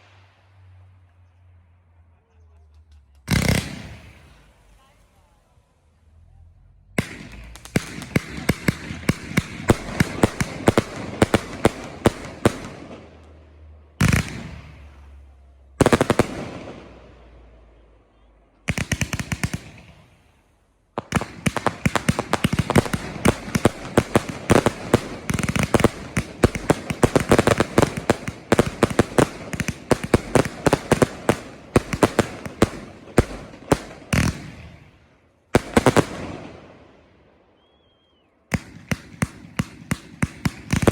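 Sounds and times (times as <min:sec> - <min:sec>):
fireworks bangs and crackles: 0:02.5 - 0:05.4, 0:07.0 - 0:17.8, 0:18.6 - 0:37.0, 0:38.5 - 0:40.9
loud echoing firework booms: 0:03.3 - 0:04.7, 0:07.0 - 0:13.2, 0:13.9 - 0:17.6, 0:20.9 - 0:37.2, 0:38.5 - 0:40.9.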